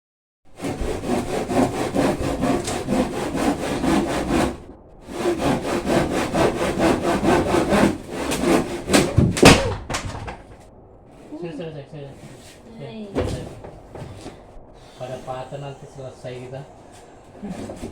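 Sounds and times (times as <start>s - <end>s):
hand saw cutting wood: 0.6s - 9.5s.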